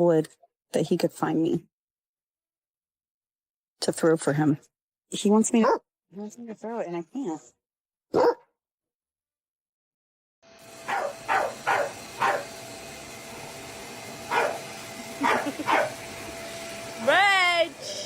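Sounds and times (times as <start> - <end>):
dog barking: 5.6 - 5.8, 8.1 - 8.5, 10.9 - 12.6, 14.3 - 14.6, 15.2 - 16.0.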